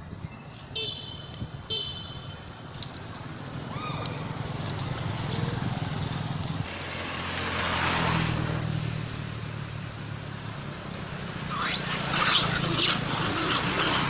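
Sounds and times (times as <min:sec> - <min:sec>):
vehicle engine passing: 0:04.3 - 0:14.0.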